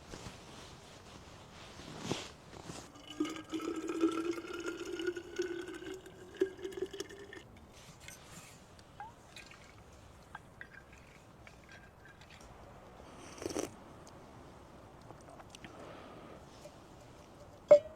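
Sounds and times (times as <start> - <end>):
liquid pouring into container: 2.9 - 7.5.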